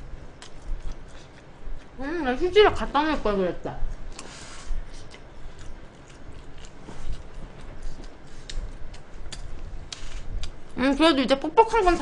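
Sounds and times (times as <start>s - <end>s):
chewing food: 0.4s - 2.0s, 4.0s - 10.8s.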